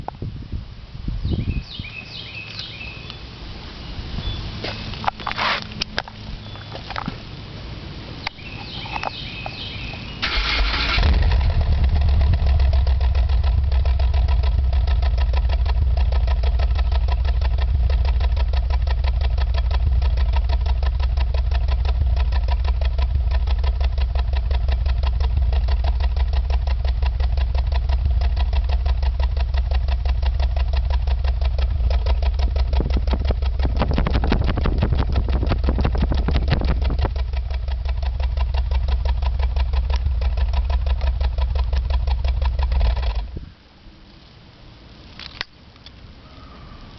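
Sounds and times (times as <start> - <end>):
car engine starting and idling: 4.8 - 45.5.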